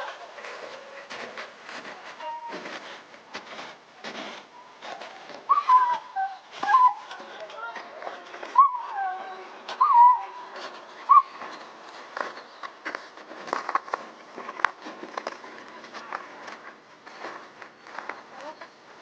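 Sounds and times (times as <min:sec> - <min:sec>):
dogs yelping: 0:04.6 - 0:07.2, 0:08.5 - 0:12.6.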